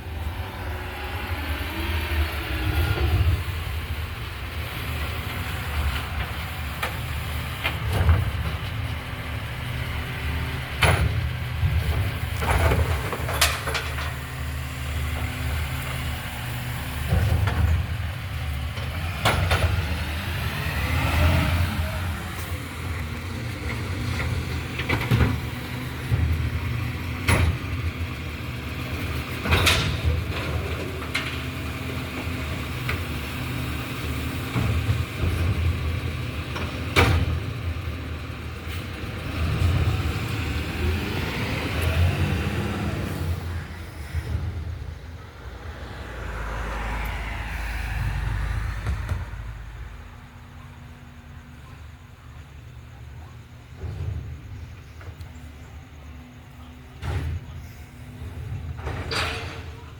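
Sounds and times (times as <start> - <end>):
garbage truck engine running: 0.0 - 47.4, 48.0 - 59.9
metal clanks and bangs: 10.7 - 14.4, 29.2 - 31.6, 56.9 - 59.9.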